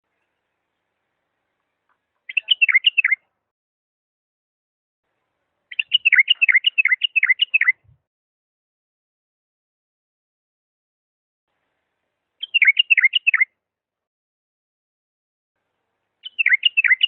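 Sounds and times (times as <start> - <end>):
bulbul singing whistled notes: 2.3 - 3.2, 5.7 - 7.9, 12.4 - 13.5, 16.2 - 17.0.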